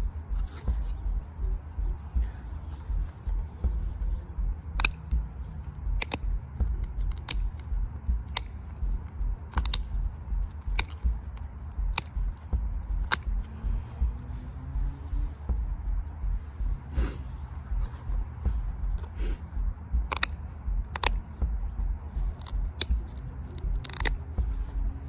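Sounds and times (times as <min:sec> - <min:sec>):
low rumble: 0:00.0 - 0:25.0
stone knapping clicks: 0:04.7 - 0:13.5, 0:20.0 - 0:21.7, 0:22.3 - 0:25.0.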